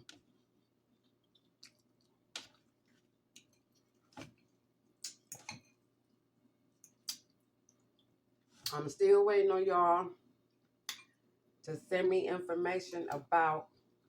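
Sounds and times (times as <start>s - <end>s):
person chewing: 0.0s - 5.5s
wet mouth clicks and smacks: 6.9s - 8.8s.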